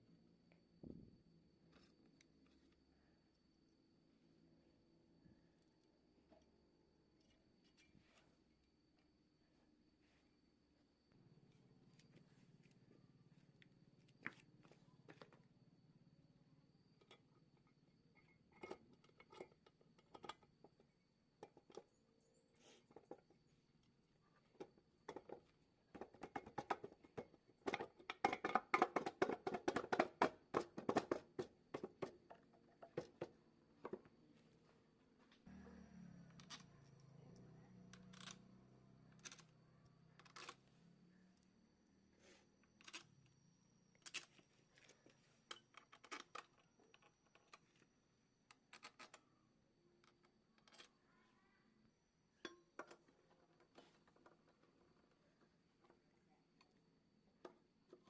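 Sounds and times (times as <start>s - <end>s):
tools clicking on metal parts: 37.9s - 39.6s.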